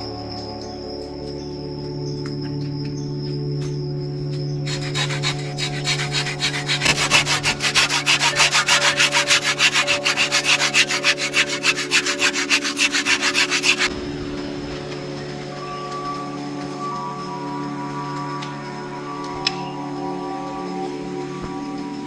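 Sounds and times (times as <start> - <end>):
background music with held tones: 0.0 - 12.0, 13.3 - 22.0
rubbing strokes on wood: 4.7 - 13.9.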